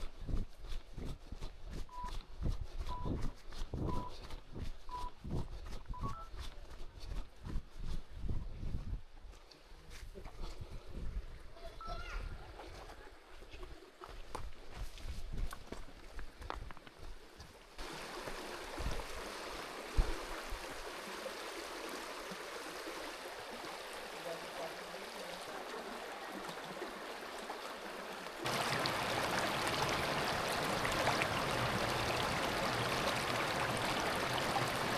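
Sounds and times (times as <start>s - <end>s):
creek water rushing: 17.8s - 34.9s.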